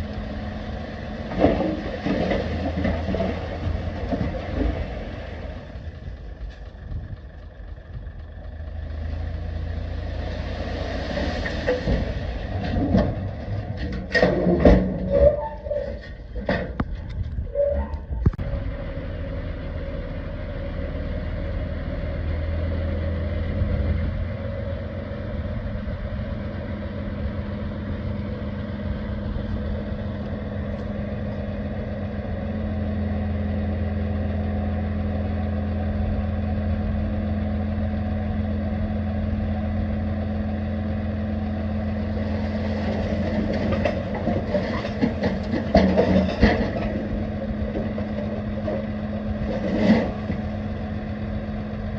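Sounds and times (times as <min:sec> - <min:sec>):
heavy diesel engine running: 0:00.0 - 0:51.9
clattering and knocking: 0:43.0 - 0:48.9.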